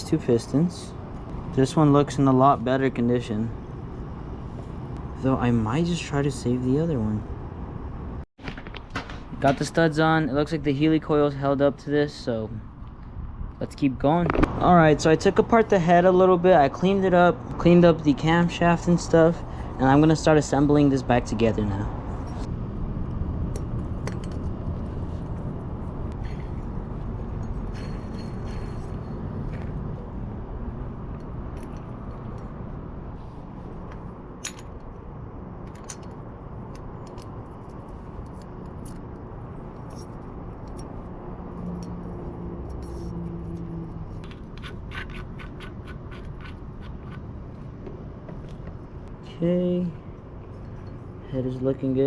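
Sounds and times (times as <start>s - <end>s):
metal engine parts clinking: 23.6s - 24.5s, 26.2s - 29.8s, 33.9s - 35.0s, 35.6s - 43.0s.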